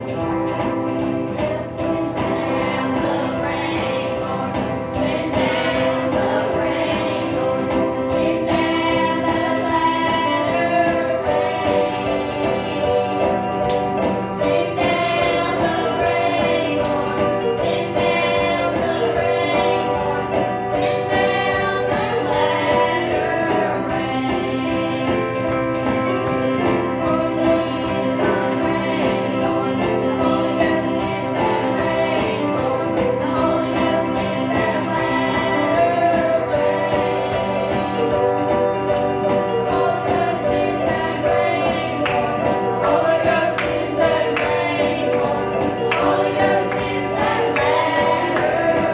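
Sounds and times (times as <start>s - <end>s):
children's choir singing: 0.0s - 48.9s
instrumental accompaniment with beat: 0.0s - 48.9s.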